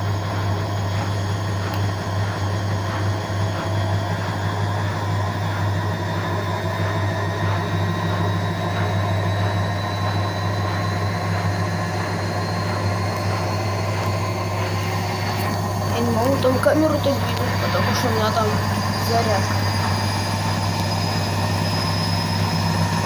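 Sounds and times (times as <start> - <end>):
faint rising high whine: 0.0 - 23.0
washing machine motor hum: 0.0 - 23.0.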